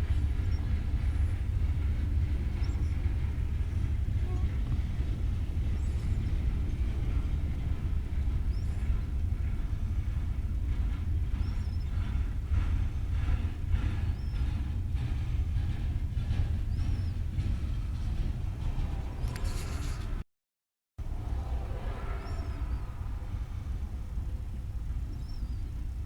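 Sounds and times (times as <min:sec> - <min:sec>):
freight train rumbling past: 0:00.0 - 0:20.2, 0:21.0 - 0:26.0.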